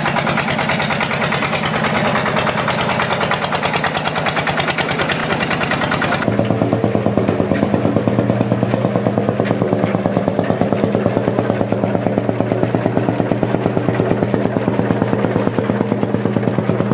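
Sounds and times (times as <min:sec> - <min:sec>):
tractor diesel engine running: 0:00.0 - 0:16.9.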